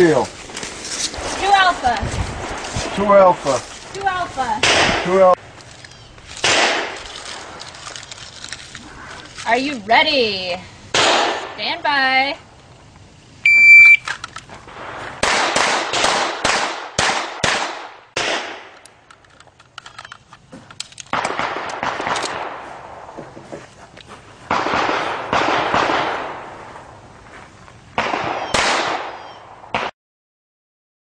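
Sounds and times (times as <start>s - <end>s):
pistol shots echoing: 6.4s - 7.0s, 11.0s - 11.6s, 14.8s - 18.8s, 21.1s - 23.2s, 24.5s - 26.5s, 28.0s - 29.9s.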